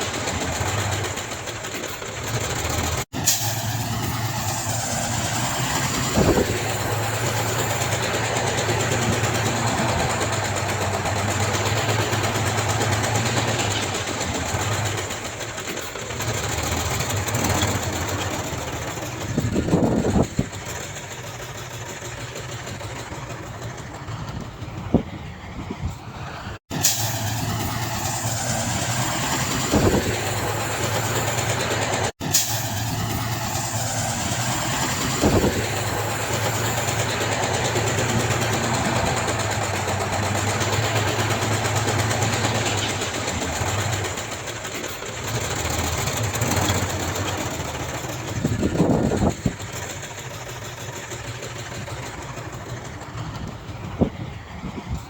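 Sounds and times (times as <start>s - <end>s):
heavy machinery diesel engines: 0.0s - 55.0s.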